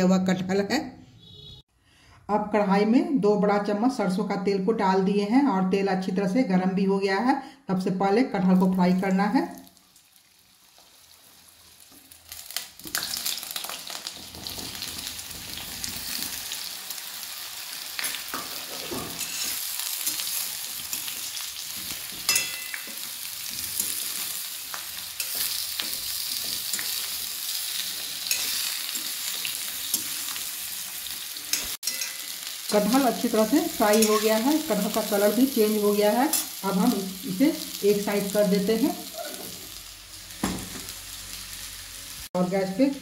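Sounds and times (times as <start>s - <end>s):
food sizzling in hot oil: 8.5s - 43.0s
metal spoon scraping a pan: 18.3s - 30.5s, 31.1s - 32.6s, 33.6s - 34.6s.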